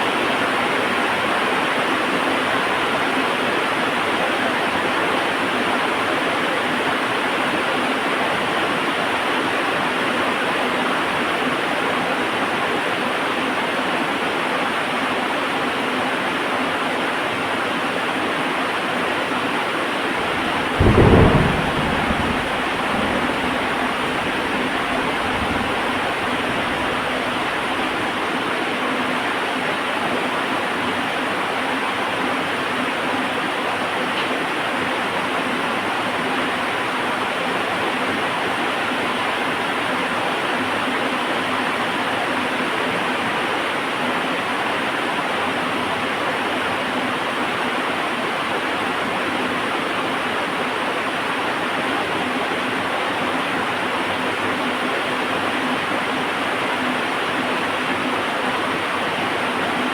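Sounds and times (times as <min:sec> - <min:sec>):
heavy rain hissing: 0:20.1 - 0:29.4
low rumble: 0:20.2 - 0:27.8.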